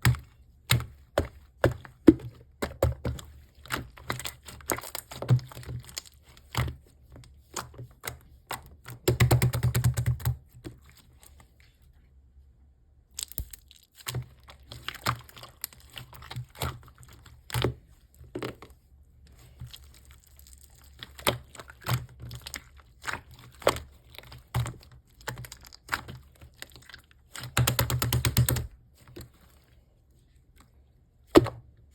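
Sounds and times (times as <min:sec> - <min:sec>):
slime clicking and popping: 0:13.2 - 0:14.1.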